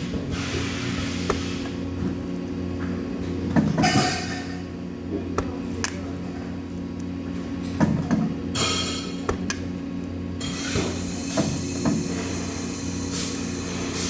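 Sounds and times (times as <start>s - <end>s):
electrical machine hum: 0.0s - 14.0s
hiss: 10.6s - 14.0s.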